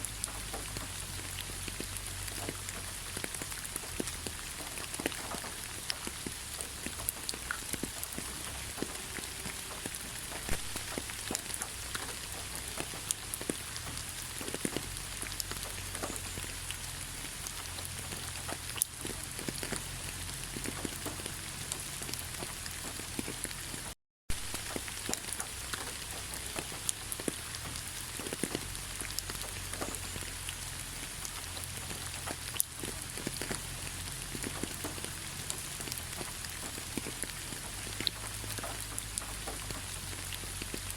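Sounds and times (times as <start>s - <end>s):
raindrops ticking close by: 0.0s - 40.9s
steady rain falling: 0.0s - 40.9s.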